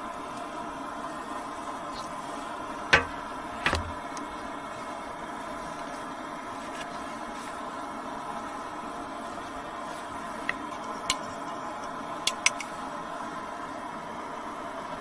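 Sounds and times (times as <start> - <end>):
steady mechanical hum: 0.0 - 15.0
sharp knocks: 2.9 - 4.0.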